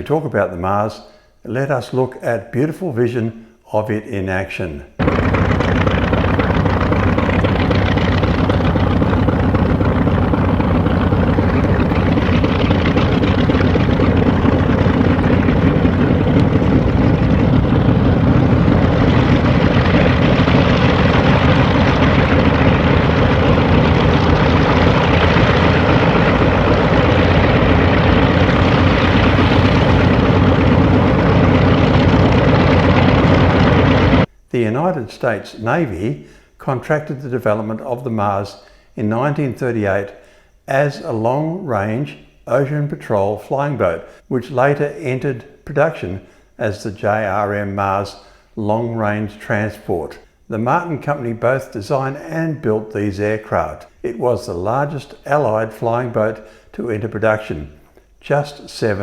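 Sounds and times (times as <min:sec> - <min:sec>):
propeller aircraft engines running: 0:05.0 - 0:34.3.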